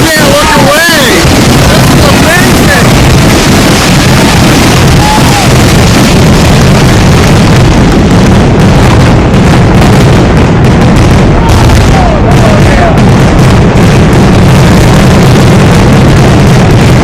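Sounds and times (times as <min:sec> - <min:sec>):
firework whistles: 0:00.0 - 0:07.0
fireworks booms and crackling: 0:00.0 - 0:17.0.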